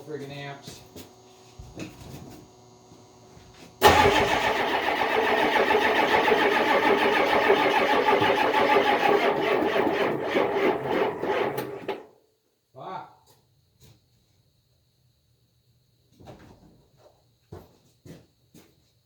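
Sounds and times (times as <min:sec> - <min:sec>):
diesel engine cranking without catching: 0:03.8 - 0:12.0.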